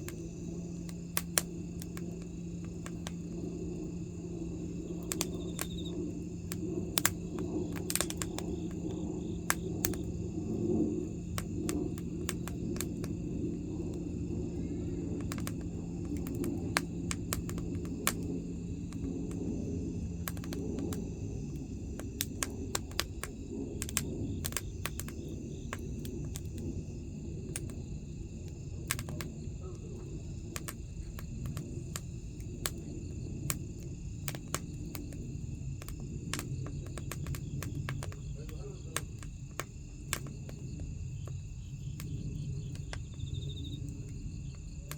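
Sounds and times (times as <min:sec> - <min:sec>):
low hum: 0:00.0 - 0:30.5
burning wood crackling and popping: 0:00.0 - 0:44.9
low rush of flame: 0:00.0 - 0:44.9.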